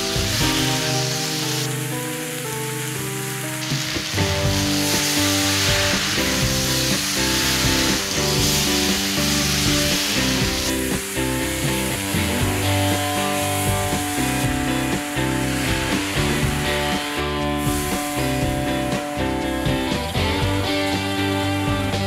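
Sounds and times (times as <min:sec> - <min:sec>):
chicken sizzling in oil: 0:00.0 - 0:22.0.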